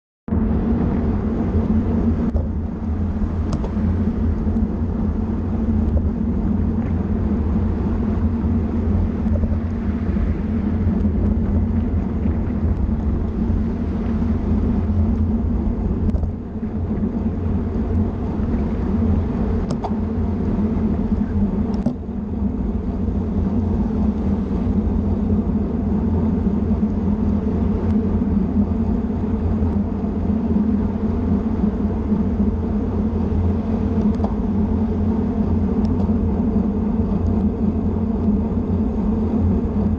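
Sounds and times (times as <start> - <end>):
road noise: 0.3 - 39.9
vehicle engine drone: 0.3 - 39.9.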